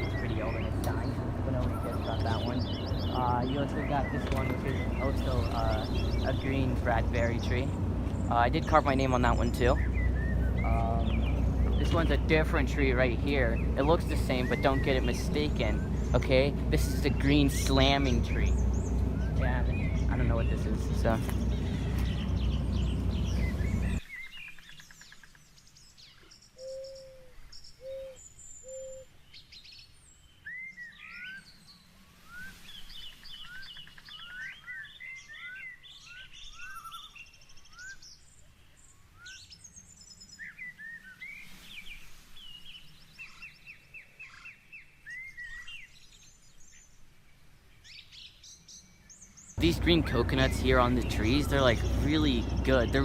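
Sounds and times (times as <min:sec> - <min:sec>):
short low bird notes: 0:00.0 - 0:24.4, 0:49.6 - 0:53.0
birds singing and chirping: 0:00.0 - 0:53.0.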